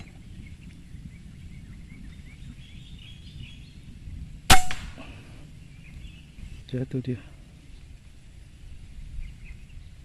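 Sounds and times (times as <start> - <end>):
outdoor background: 0.0 - 10.0
air rifle shot: 4.5 - 5.2.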